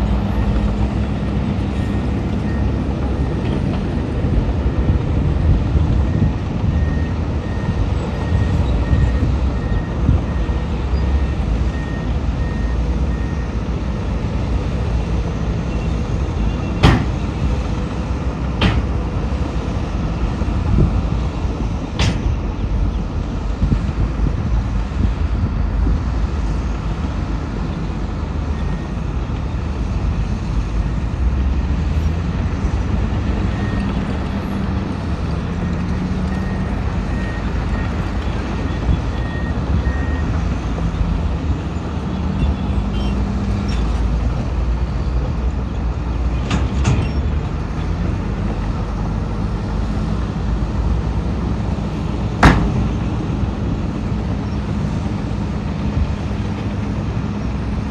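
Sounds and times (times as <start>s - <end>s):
diesel machinery engine rumble: 0.0s - 57.9s
reversing alarm beeps: 6.1s - 13.5s, 38.6s - 40.4s.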